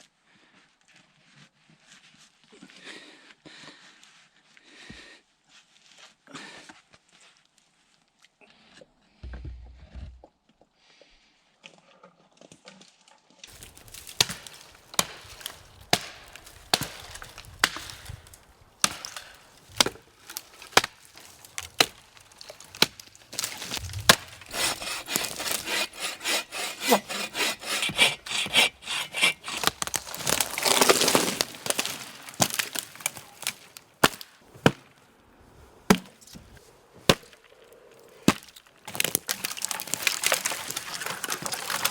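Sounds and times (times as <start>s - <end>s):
dry wood cracking and snapping: 13.4s - 34.9s, 38.2s - 41.9s
wood scraping and rubbing: 13.5s - 33.8s.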